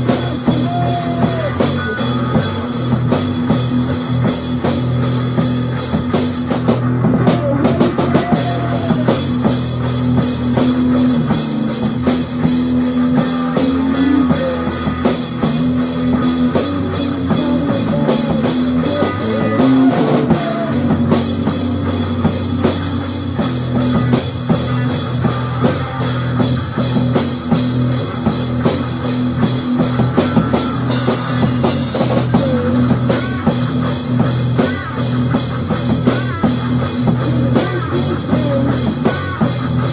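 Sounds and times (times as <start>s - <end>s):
drum kit beat: 0.0s - 39.9s
loud rock music: 0.0s - 39.9s.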